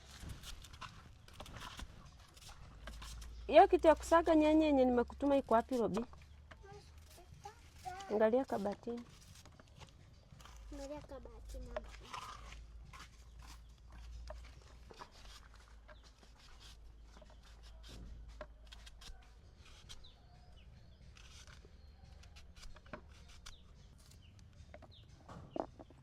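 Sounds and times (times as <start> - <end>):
small knocks and clatters: 0.0 - 4.2, 5.0 - 20.1, 21.0 - 26.0
chickens clucking: 25.3 - 26.0.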